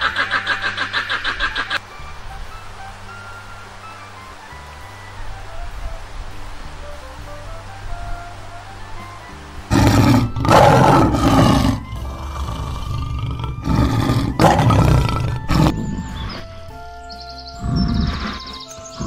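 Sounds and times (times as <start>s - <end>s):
background music: 0.0s - 19.0s
lion roaring: 9.7s - 16.4s, 17.6s - 18.5s.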